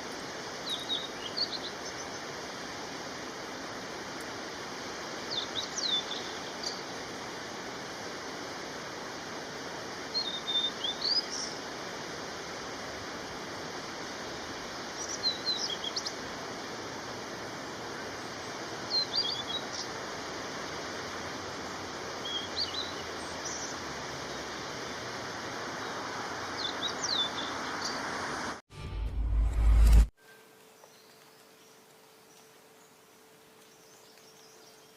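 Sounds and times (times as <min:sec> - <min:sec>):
steady hiss: 0:00.0 - 0:28.6
songbird chirping: 0:00.1 - 0:02.3, 0:05.2 - 0:07.0, 0:10.1 - 0:11.6, 0:14.2 - 0:16.3, 0:17.6 - 0:20.0, 0:21.6 - 0:28.3, 0:30.2 - 0:34.9.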